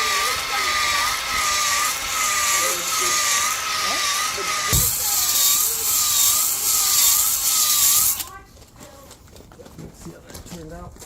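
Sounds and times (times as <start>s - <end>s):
power tool hissing with motor whine: 0.0s - 8.3s.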